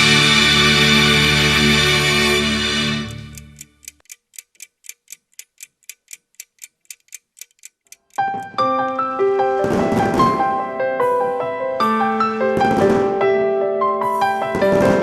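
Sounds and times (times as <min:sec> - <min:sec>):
clock ticking: 0:03.1 - 0:08.6
piano music: 0:08.2 - 0:15.0.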